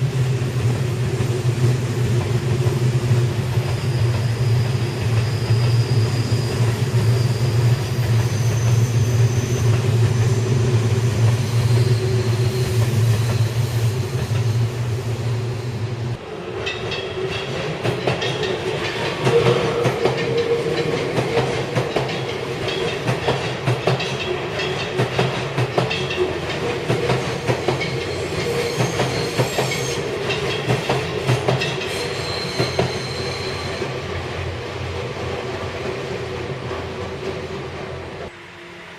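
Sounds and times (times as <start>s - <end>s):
electric train humming: 0.0s - 38.9s
train wheels clattering over rail joints: 16.7s - 33.1s.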